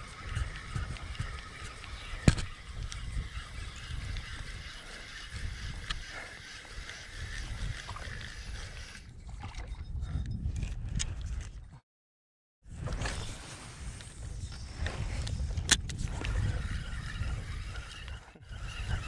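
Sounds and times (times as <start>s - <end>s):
water lapping against a hull: 0.0s - 9.8s.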